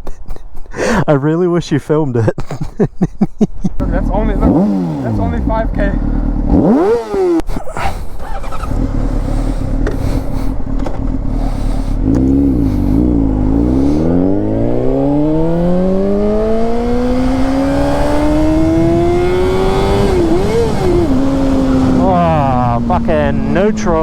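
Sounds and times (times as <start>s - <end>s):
motorcycle engine accelerating: 3.8s - 24.0s
wind rush: 9.6s - 24.0s.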